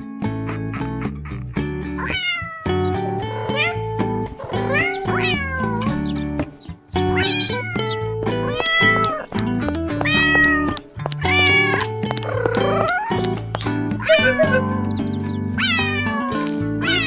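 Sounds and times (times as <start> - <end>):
cat meowing: 2.0 - 6.2, 7.1 - 17.0.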